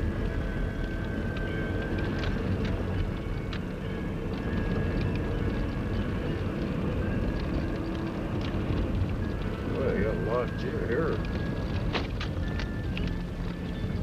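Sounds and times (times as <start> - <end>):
engine and road rumble: 0.0 - 14.0.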